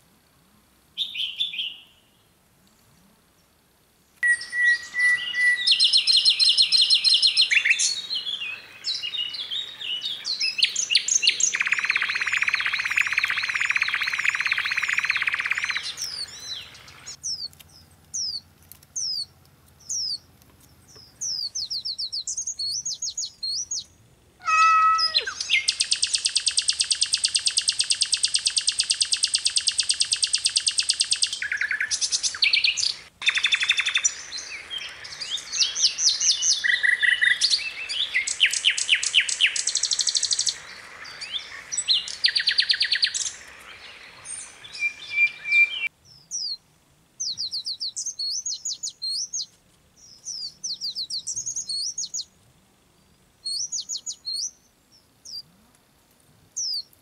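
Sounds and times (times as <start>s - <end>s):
songbirds chirping and singing: 4.2s - 46.6s, 47.2s - 52.3s, 53.4s - 55.5s
fast repeated bird trill: 10.2s - 17.5s, 24.4s - 43.4s.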